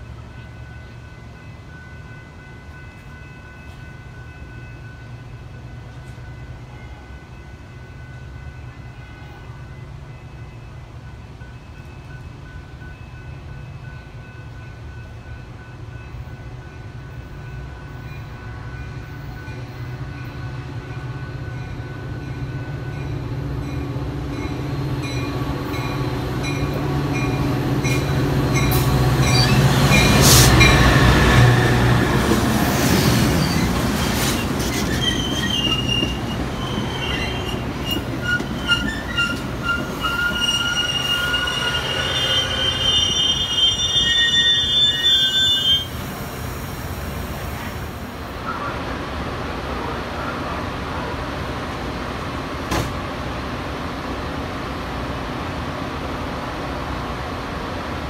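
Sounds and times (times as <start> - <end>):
diesel locomotive engine rumble: 0.0 - 58.0
high-pitched wheel squeal: 34.6 - 46.0.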